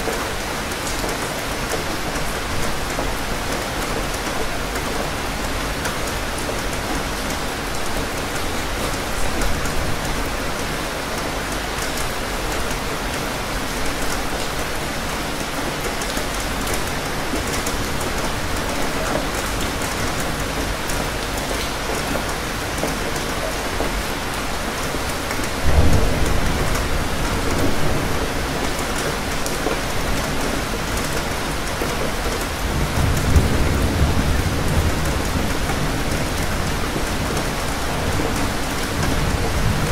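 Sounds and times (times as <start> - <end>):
heavy rain pattering: 0.0 - 39.9
thunder rumbles: 25.5 - 29.3, 32.5 - 39.9.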